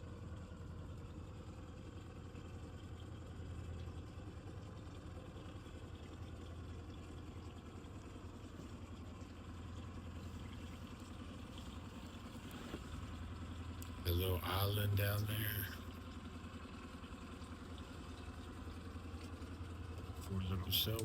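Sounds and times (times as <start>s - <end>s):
boat engine humming: 0.0s - 21.0s.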